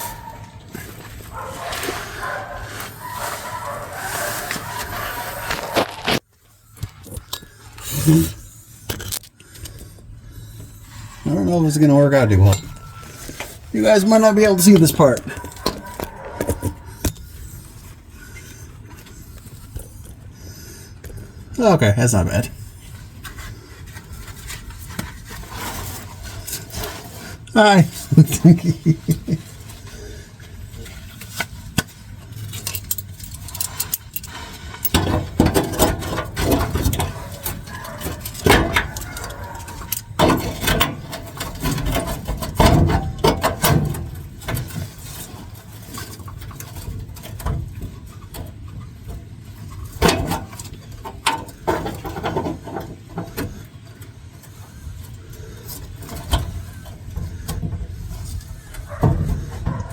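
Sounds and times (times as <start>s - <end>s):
hand tools on metal bolts: 10.6s - 17.8s, 30.8s - 59.9s.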